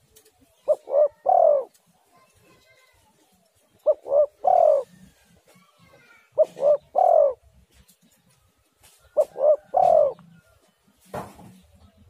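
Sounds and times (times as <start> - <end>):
dove cooing: 0.0 - 1.8, 3.8 - 5.3, 6.3 - 7.5, 9.0 - 10.4.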